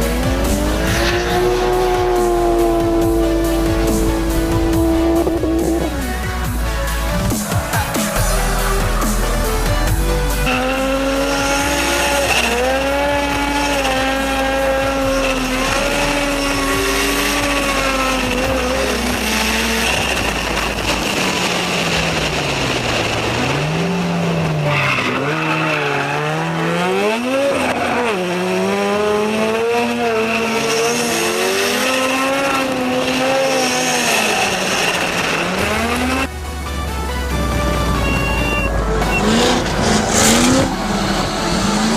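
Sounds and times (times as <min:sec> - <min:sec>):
car engine revving: 0:00.0 - 0:41.9
tire squeal: 0:10.4 - 0:21.3, 0:24.4 - 0:28.4, 0:29.9 - 0:36.3, 0:37.9 - 0:41.9.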